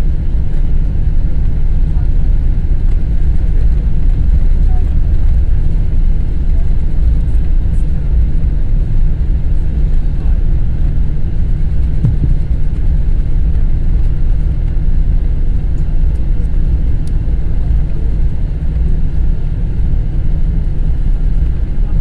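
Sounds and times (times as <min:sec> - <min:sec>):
jet engines at taxi power: 0:00.0 - 0:22.0
airframe rumble: 0:09.5 - 0:14.7.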